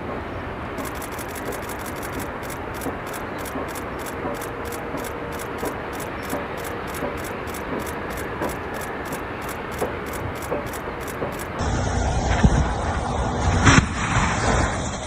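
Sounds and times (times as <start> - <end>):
vehicle road noise: 0.0 - 15.0
faint crisp ticks: 0.8 - 11.6.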